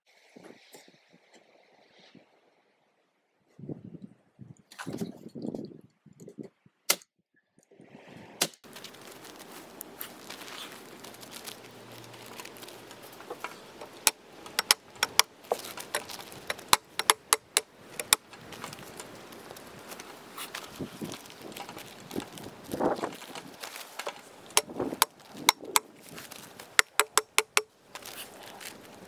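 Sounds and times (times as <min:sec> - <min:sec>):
staple gun snapping: 0:14.0 - 0:15.3, 0:15.9 - 0:18.2.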